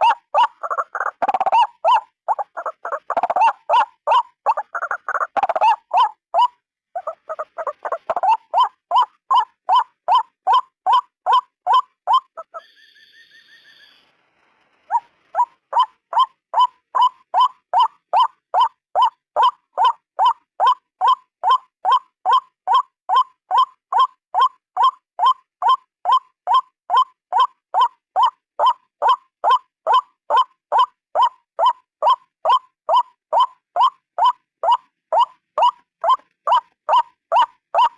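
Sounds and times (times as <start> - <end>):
waterhen calling: 0.0 - 12.8, 14.9 - 37.9
faint high-pitched bird note: 12.5 - 14.1.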